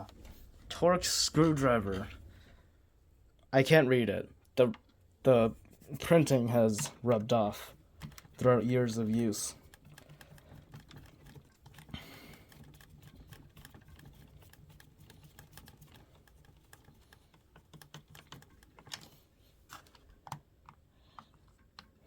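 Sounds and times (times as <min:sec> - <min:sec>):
screwdriver clicking on plastic: 0:07.9 - 0:22.0.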